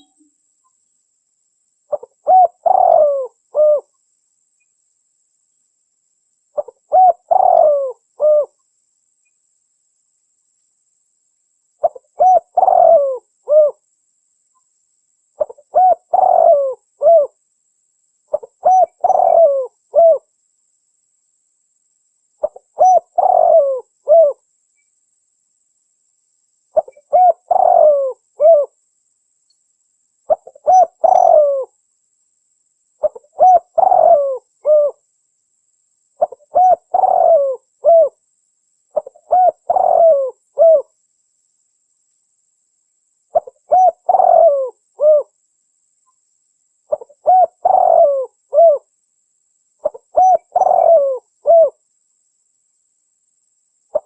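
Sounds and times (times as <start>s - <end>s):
dove cooing: 1.9s - 3.9s, 6.6s - 8.6s, 11.8s - 13.8s, 15.4s - 17.4s, 18.3s - 20.3s, 22.4s - 24.4s, 26.8s - 28.8s, 30.3s - 31.7s, 33.0s - 35.0s, 36.2s - 38.2s, 38.9s - 40.9s, 43.3s - 45.3s, 46.9s - 48.9s, 49.8s - 51.8s.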